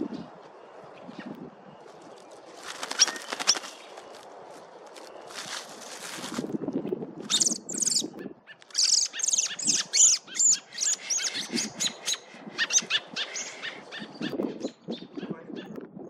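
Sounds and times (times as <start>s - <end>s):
baby bird chirping: 7.3s - 8.1s, 8.8s - 13.8s.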